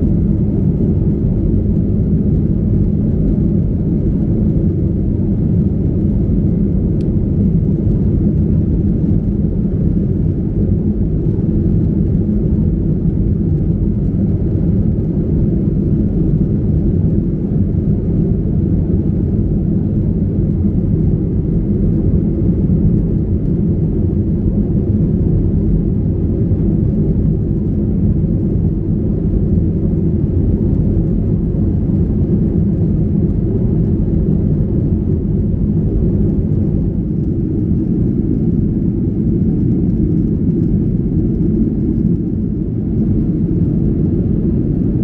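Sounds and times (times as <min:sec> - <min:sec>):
airplane cabin engine rumble: 0:00.0 - 0:45.0.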